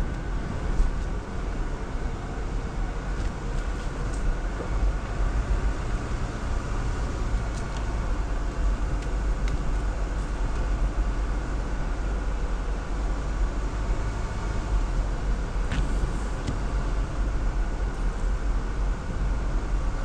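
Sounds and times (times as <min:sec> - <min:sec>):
engine and drivetrain rumble: 0:00.0 - 0:20.0.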